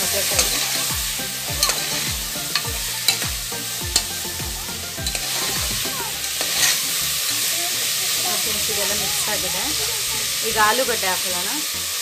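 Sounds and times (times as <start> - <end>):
food sizzling in oil: 0.0 - 12.0
metal spoon scraping pot: 1.6 - 3.2.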